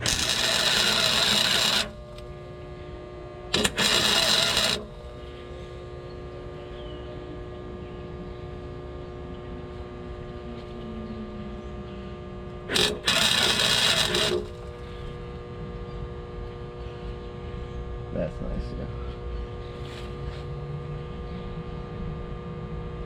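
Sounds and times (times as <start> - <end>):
welding arc crackling: 0.0 - 2.4, 3.5 - 5.2, 12.7 - 14.8
welder humming: 0.0 - 21.8.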